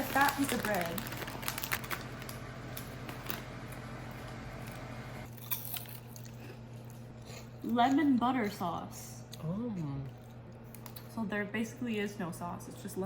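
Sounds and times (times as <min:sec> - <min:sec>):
food container clicks and rustles: 0:00.0 - 0:02.0
steady low hum: 0:00.0 - 0:13.0.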